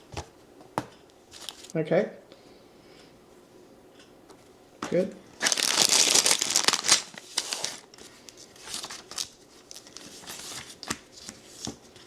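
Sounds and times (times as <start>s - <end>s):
plastic bags crinkling: 5.4s - 7.9s.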